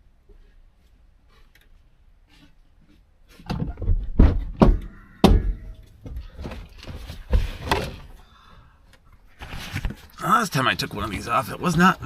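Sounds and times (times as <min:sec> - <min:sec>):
rustling and scraping: 0:00.2 - 0:08.2, 0:09.1 - 0:10.2
thumps and knocks: 0:03.3 - 0:08.1.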